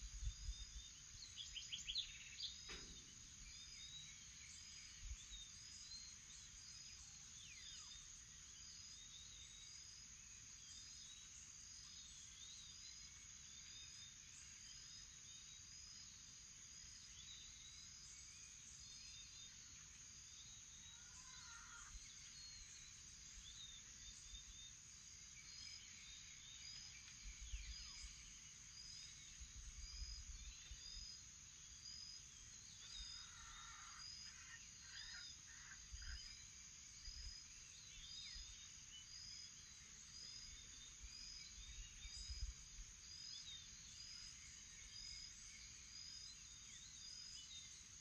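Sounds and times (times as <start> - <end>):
high insect drone: 17.0 - 47.8.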